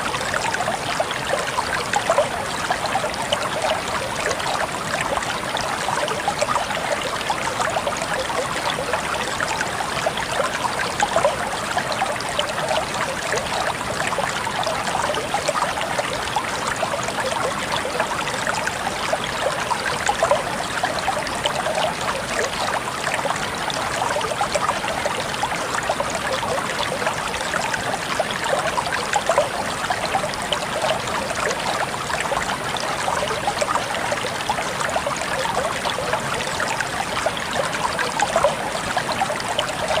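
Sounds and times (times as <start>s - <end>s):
stream water splashing: 0.0s - 40.0s.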